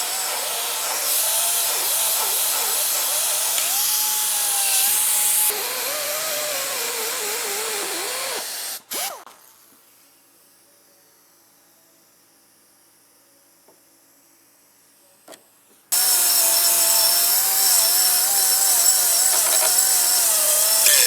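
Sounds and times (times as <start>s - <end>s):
angle grinder cutting steel: 0.0s - 5.5s, 16.0s - 21.0s.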